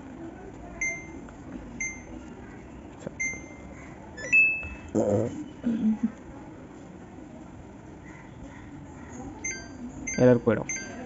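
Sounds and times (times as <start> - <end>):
control panel beeps: 0.8 - 1.2, 1.8 - 2.2, 3.2 - 4.9, 9.4 - 11.0.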